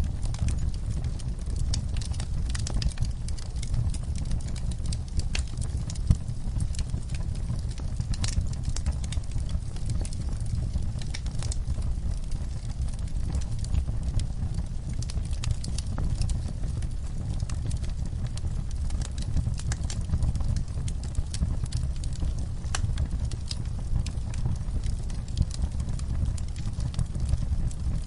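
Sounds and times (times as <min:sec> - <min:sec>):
low fire rumble: 0:00.0 - 0:28.0
wood fire crackling and popping: 0:00.0 - 0:28.0.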